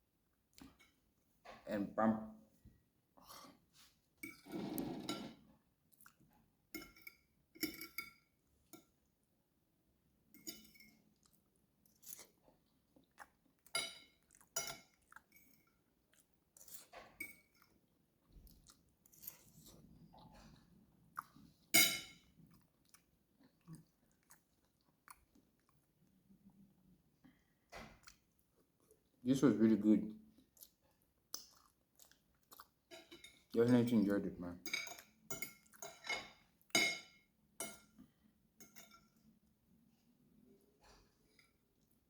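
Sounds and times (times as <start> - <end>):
cutlery clinking: 4.2 - 5.4, 6.7 - 8.9, 10.3 - 11.0, 13.7 - 15.7, 16.8 - 17.7, 21.7 - 22.3, 32.9 - 38.0, 38.6 - 39.2
person chewing food: 5.8 - 7.0, 10.8 - 29.2, 30.2 - 33.5, 34.9 - 36.8.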